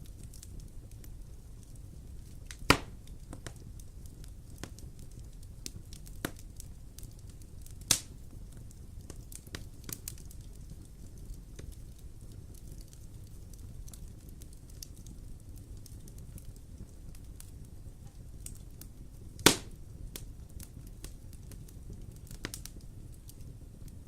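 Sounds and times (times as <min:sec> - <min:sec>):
fire crackling in a fireplace: 0:00.0 - 0:24.0
loud sharp fire pops: 0:02.5 - 0:03.6, 0:04.5 - 0:11.8, 0:19.4 - 0:21.6.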